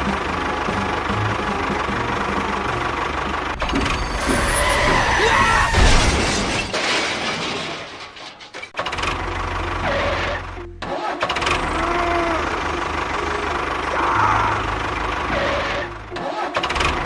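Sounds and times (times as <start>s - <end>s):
motor running with rattling: 11.3s - 17.0s.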